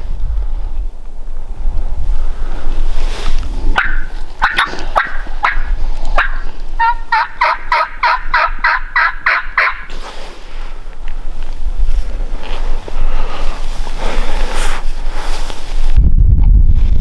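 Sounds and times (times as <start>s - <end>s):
turkey yelping: 3.8s - 9.9s.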